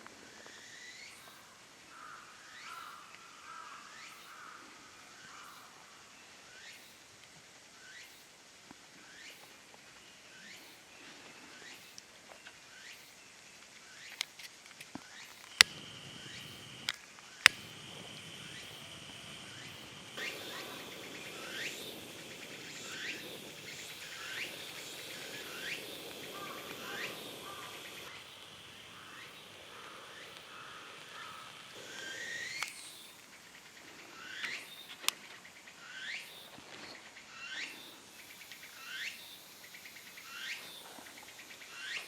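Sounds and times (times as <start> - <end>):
short rising bird chirps: 15.2 - 33.2
high-pitched insect tone: 15.2 - 35.1, 37.3 - 42.0
sharp cracks: 15.4 - 32.9.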